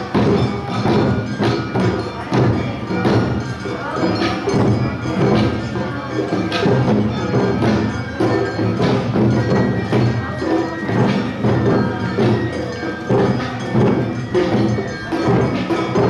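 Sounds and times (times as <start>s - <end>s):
festival drums: 0.0s - 16.0s.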